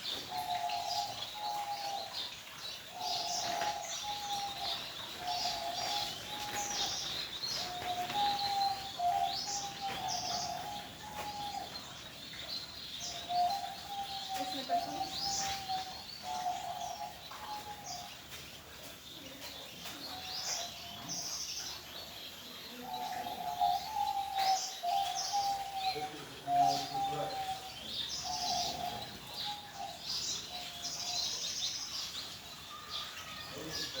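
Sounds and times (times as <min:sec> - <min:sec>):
birds chirping and trilling: 0:00.0 - 0:34.0
birds whistling: 0:22.9 - 0:31.2.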